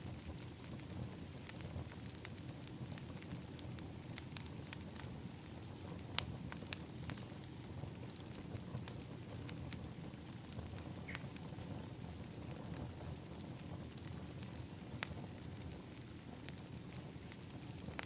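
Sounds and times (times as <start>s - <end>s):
fire popping: 0.0s - 18.0s
wood fire crackling: 0.0s - 18.0s.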